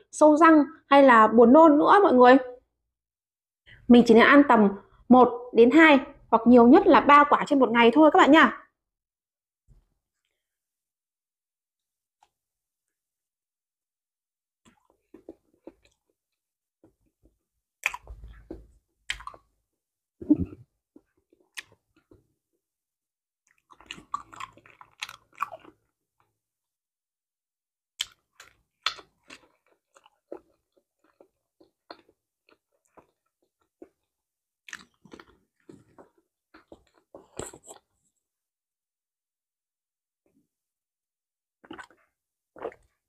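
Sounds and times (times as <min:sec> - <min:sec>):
wet chewing: 0:17.8 - 0:19.4
mouth clicks and lip smacks: 0:17.8 - 0:19.5, 0:28.0 - 0:30.5.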